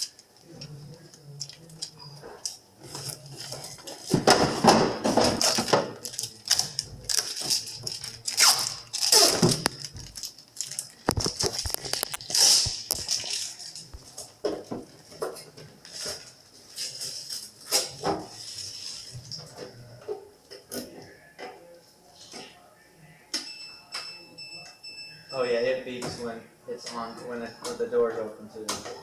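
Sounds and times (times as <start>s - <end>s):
plastic shelves clattering: 2.9s - 13.5s
tape being peeled off: 6.0s - 13.9s.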